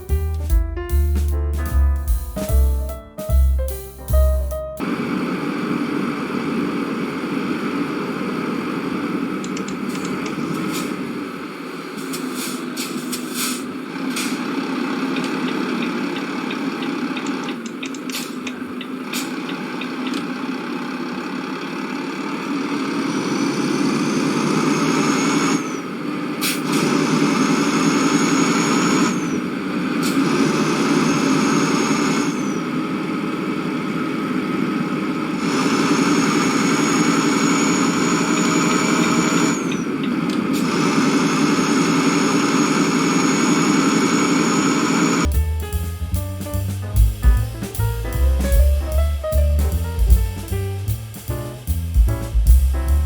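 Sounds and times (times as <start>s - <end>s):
vehicle engine and road noise: 4.2s - 53.0s
faint high whine: 33.9s - 40.0s.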